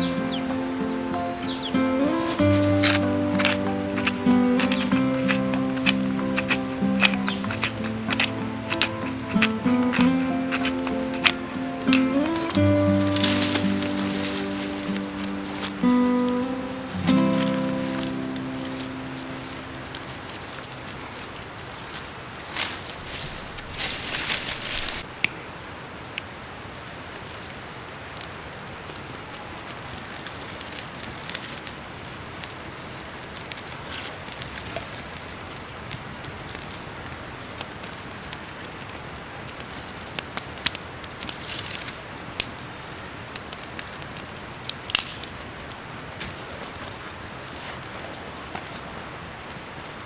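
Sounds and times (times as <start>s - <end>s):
creek water rushing: 0.0s - 25.1s
fire crackling and popping: 0.0s - 25.4s, 26.1s - 50.0s.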